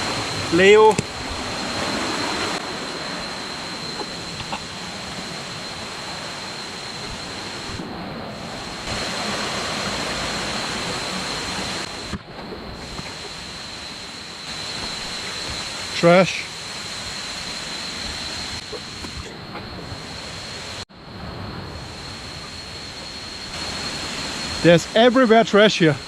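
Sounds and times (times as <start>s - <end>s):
river and waterfall rushing: 0.0s - 12.2s, 12.8s - 19.1s.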